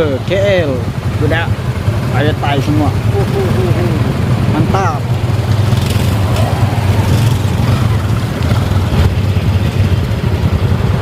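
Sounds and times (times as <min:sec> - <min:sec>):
motorcycle engine rumble: 0:00.0 - 0:11.0
rushing air: 0:03.0 - 0:10.4.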